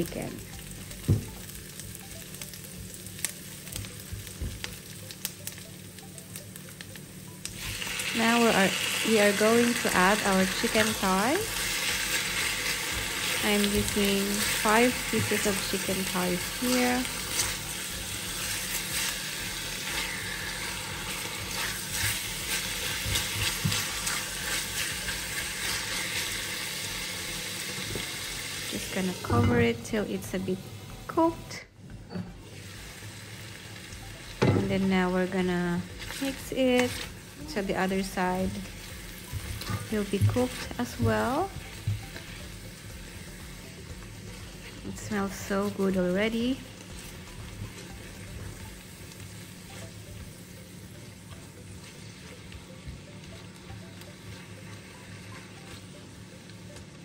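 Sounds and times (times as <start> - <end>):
garlic and onions sizzling in oil: 0.0 - 31.6, 32.4 - 57.0
spatula stirring in skillet: 17.1 - 26.4.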